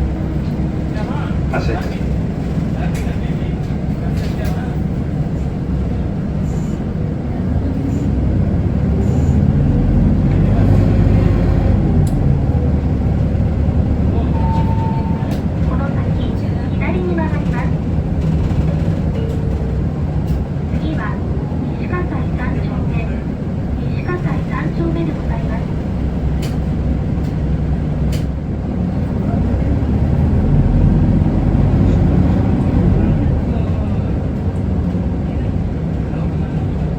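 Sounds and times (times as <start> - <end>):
bus engine accelerating: 0.0 - 36.9
road noise: 0.0 - 36.9
brief clicks in cabin: 26.4 - 26.6, 28.1 - 28.4.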